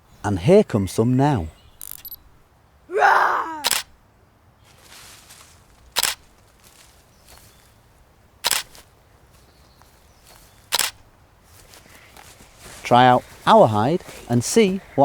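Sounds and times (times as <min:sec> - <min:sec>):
faint outdoor background: 0:00.0 - 0:15.0
camera shutter clicks: 0:03.6 - 0:04.0, 0:06.0 - 0:06.2, 0:08.4 - 0:08.8, 0:10.7 - 0:11.0.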